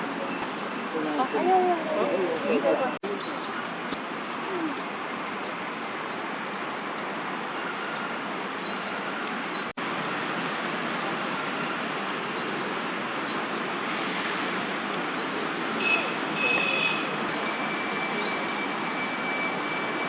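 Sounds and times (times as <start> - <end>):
city traffic hum: 0.0 - 20.0
bird chirping: 0.3 - 1.4, 10.4 - 10.8, 15.2 - 18.8.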